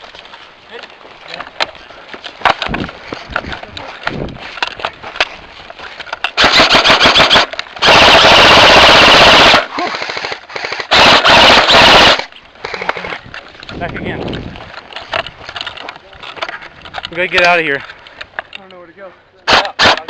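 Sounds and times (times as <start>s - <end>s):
airsoft rifles firing bursts: 6.4s - 12.8s, 19.5s - 20.0s.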